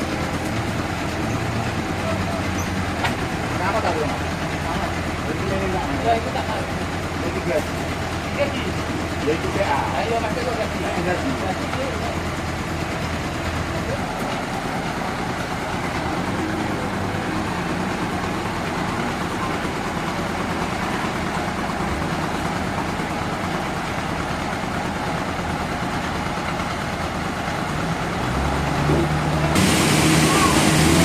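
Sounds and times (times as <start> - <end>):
sawmill machinery engine drone: 0.0 - 31.0
high hiss: 29.6 - 31.0.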